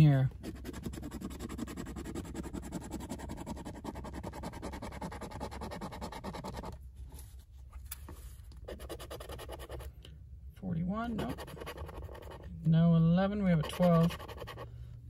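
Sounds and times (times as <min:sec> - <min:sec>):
lottery ticket being scratched: 0:11.1 - 0:12.4, 0:13.4 - 0:14.7.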